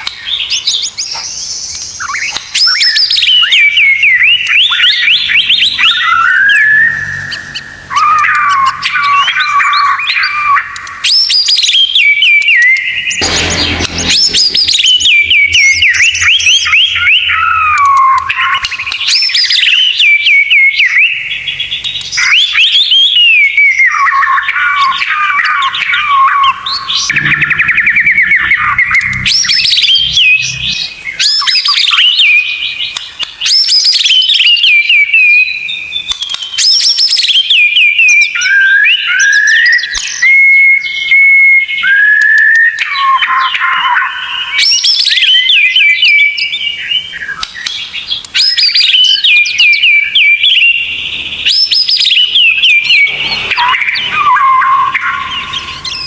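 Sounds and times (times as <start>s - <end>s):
bird singing whistled phrases: 0.2s - 13.2s, 15.0s - 56.0s
harsh noisy burst: 13.1s - 17.7s, 26.6s - 31.1s.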